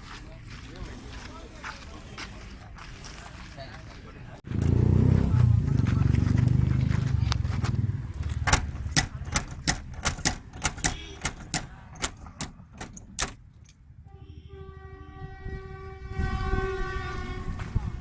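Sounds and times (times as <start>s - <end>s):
sharp clicks or taps: 7.3s - 13.4s
steady horn: 10.6s - 11.8s, 14.1s - 18.0s.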